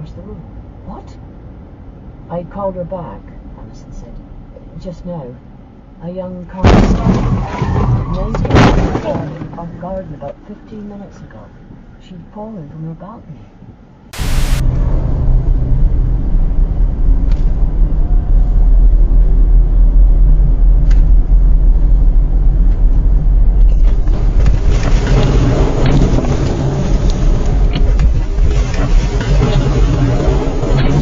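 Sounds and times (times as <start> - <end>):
vehicle rumble: 0.0 - 6.7, 13.1 - 31.0.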